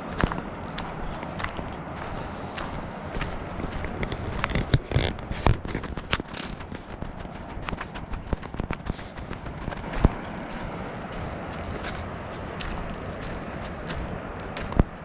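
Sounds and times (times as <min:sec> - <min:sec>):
crackling: 0:01.1 - 0:10.4
sharp clicks and knocks: 0:03.8 - 0:10.2.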